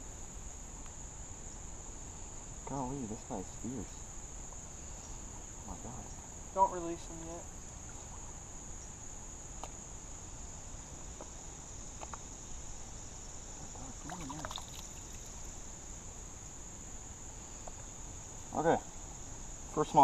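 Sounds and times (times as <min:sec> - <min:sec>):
insects chorus whining: 0:00.0 - 0:20.0
faint clicks: 0:12.0 - 0:12.2.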